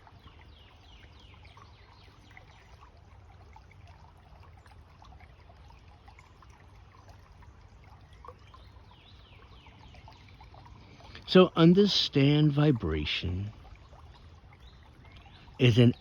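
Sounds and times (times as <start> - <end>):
water trickling: 0.0 - 16.0
birds calling: 14.6 - 16.0.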